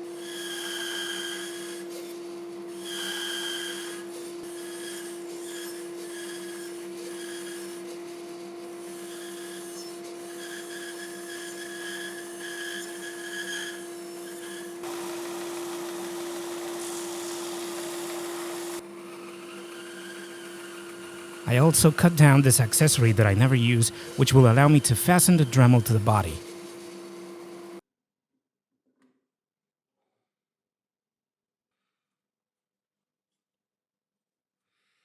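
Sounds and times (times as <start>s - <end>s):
saw blade cutting plywood: 0.1s - 27.8s
bandsaw motor hum: 8.6s - 27.8s.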